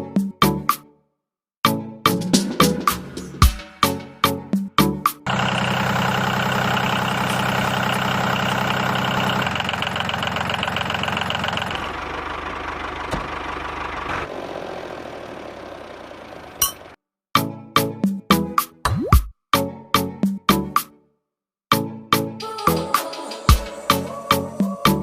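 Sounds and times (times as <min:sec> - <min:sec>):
engine idling: 0:05.3 - 0:17.0.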